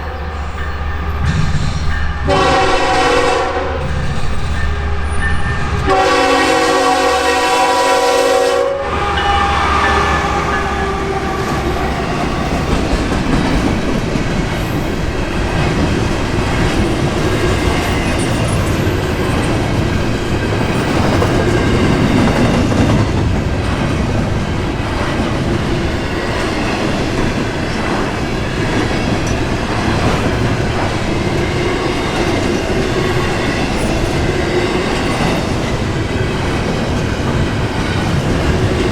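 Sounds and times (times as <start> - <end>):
train rumbling past: 0.0 - 38.9
locomotive air horn: 2.3 - 3.9, 5.8 - 12.0.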